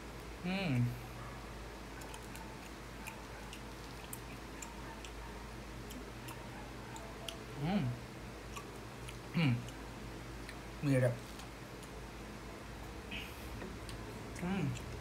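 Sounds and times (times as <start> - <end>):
chewing mouth sounds: 2.0 - 7.5, 8.4 - 9.8, 13.8 - 15.0
person humming: 9.4 - 9.7.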